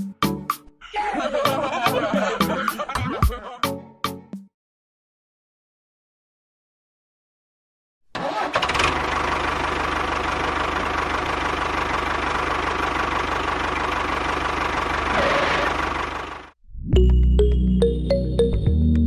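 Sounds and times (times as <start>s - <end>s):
engine starting and running: 8.1s - 16.6s.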